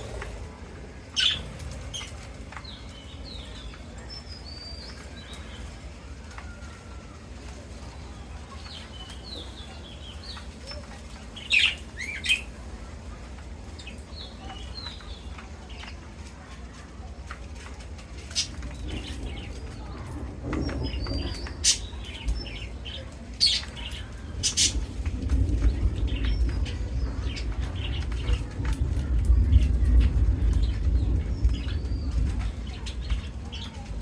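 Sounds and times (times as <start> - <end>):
parrots chirping: 0.0 - 5.6.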